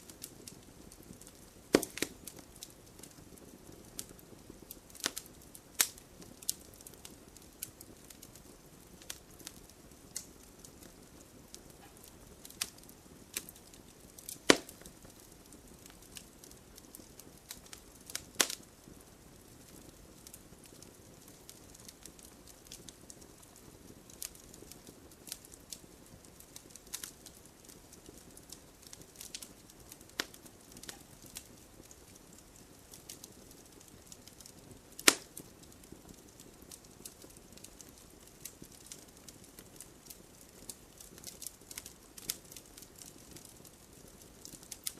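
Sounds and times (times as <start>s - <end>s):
campfire crackling: 0.0s - 44.9s
loud sharp fire pops: 1.3s - 4.1s, 11.8s - 15.3s, 34.9s - 35.6s.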